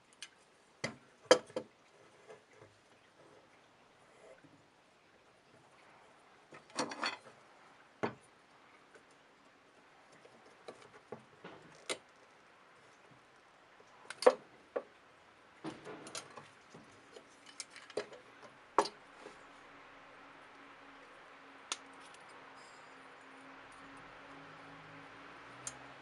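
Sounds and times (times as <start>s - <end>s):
small parts and tools clinking: 17.1s - 18.2s.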